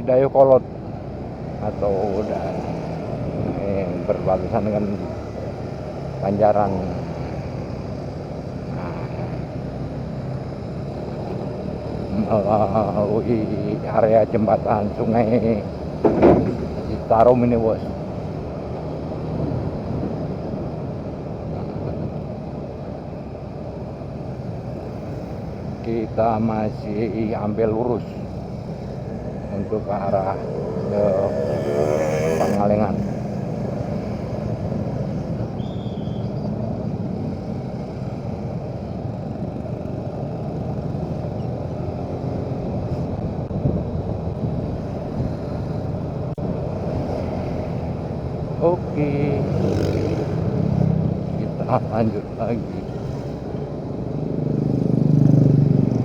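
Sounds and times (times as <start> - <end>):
road noise: 0.0 - 56.0
motorcycle engine running: 0.9 - 56.0
wind on microphone: 42.7 - 48.6.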